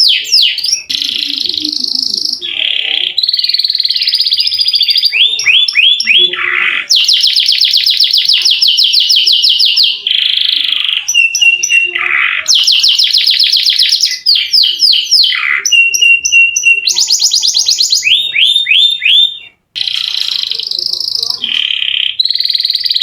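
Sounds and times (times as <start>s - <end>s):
canary singing: 0.0s - 23.0s.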